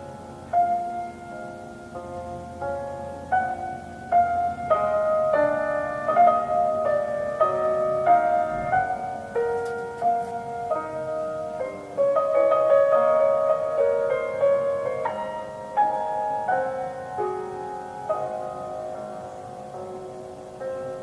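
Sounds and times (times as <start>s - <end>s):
solo piano melody: 0.0s - 21.0s.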